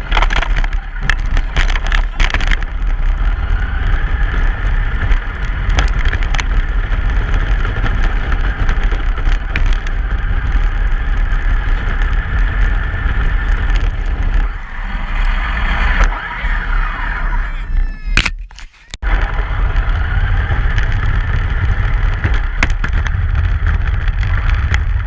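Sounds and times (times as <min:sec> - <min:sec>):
clicks and rattles: 0:00.0 - 0:03.3, 0:04.2 - 0:14.5
truck engine and road rumble: 0:00.0 - 0:25.0
brief whine: 0:14.4 - 0:19.7.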